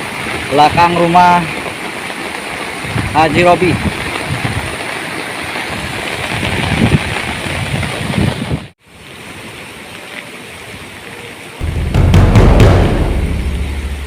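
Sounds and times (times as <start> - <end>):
rushing river water: 0.0 - 8.1, 8.8 - 14.0
wind buffeting microphone: 5.7 - 8.7
deep loud sound: 11.6 - 14.0.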